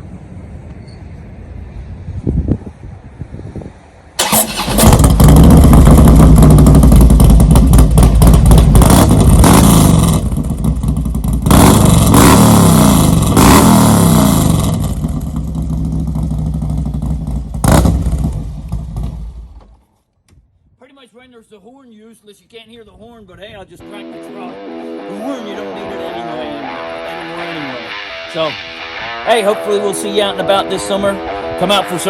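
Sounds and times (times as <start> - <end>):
motorcycle engine revving: 4.2 - 19.8
motorcycle engine starting: 4.2 - 19.9
motorcycle engine lumpy idle: 4.9 - 12.1, 14.6 - 19.8.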